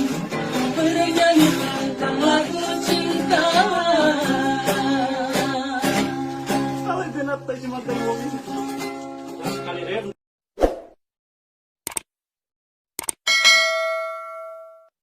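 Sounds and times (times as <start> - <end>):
acoustic guitar strumming: 0.0 - 10.1.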